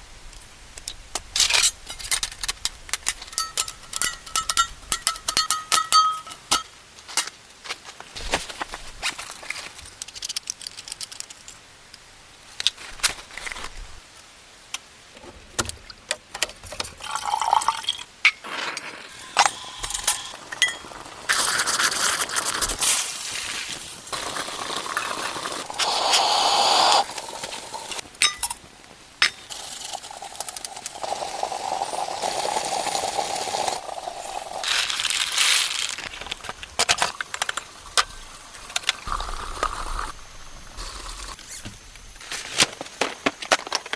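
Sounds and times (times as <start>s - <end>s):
cookware clinking: 3.3s - 6.7s, 19.4s - 20.9s, 28.2s - 28.6s
water pouring: 17.0s - 28.0s, 29.5s - 36.1s.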